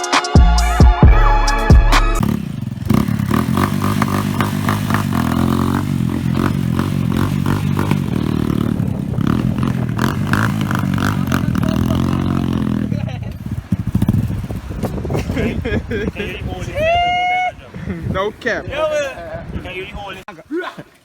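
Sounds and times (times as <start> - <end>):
music: 0.0 - 2.2
engine running steadily: 2.2 - 14.2.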